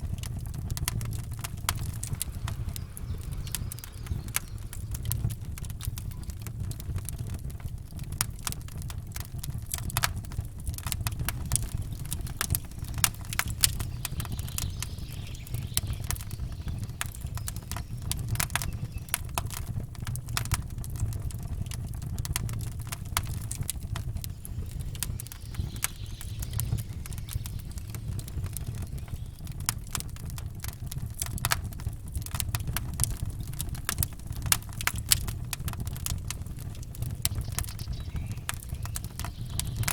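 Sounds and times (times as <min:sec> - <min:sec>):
low rumble: 0:00.0 - 0:08.2, 0:10.2 - 0:30.3
campfire crackling: 0:00.0 - 0:39.9.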